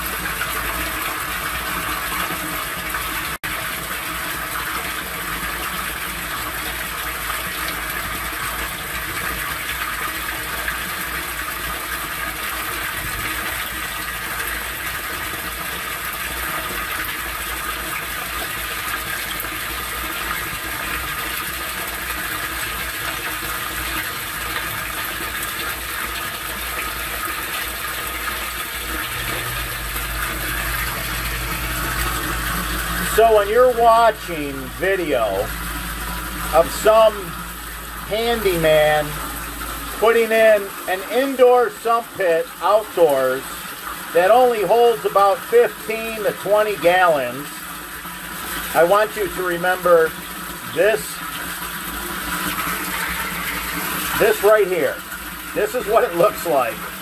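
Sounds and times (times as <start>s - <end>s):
rainwater gushing into drain: 0.0s - 57.0s
low steady hum: 28.6s - 43.6s.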